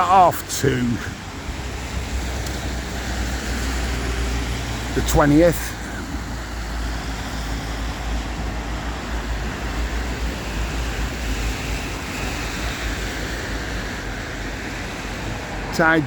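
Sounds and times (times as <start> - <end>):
traffic noise: 0.0 - 16.0
tyres hissing on wet road: 0.0 - 16.0
wind rumbling on microphone: 1.0 - 5.0, 5.7 - 16.0.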